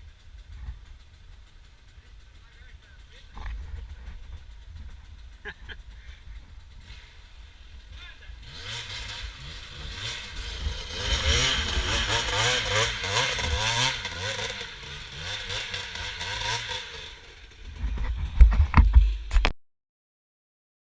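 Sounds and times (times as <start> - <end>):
motorcycle engine revving: 0.0 - 19.5
loud knocks and thumps: 17.8 - 19.4.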